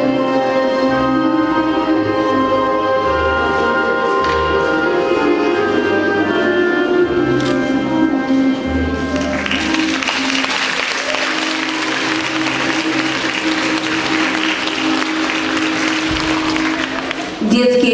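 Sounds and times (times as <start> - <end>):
audience applause: 9.1 - 17.4.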